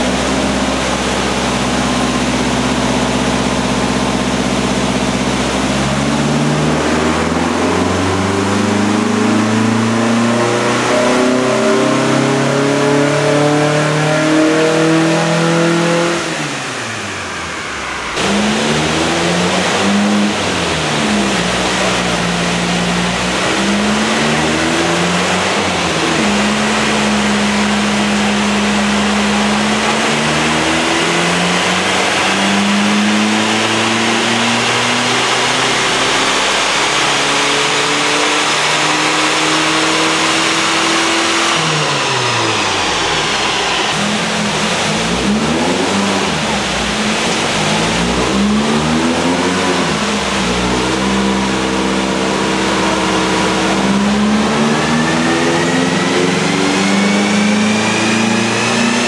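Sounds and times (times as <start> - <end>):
car engine revving under load: 0.0 - 59.0.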